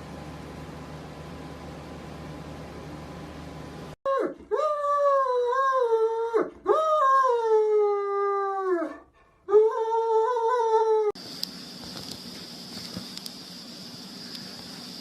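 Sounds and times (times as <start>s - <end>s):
dog howling: 4.1s - 11.2s.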